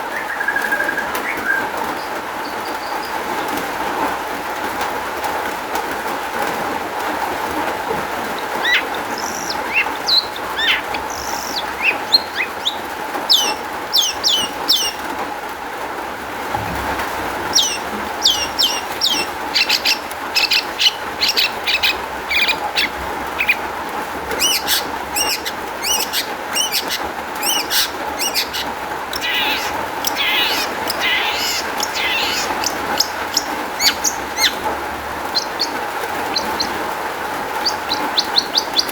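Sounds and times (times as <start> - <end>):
shrike singing: 8.2 - 15.2, 16.9 - 23.7, 24.3 - 38.9.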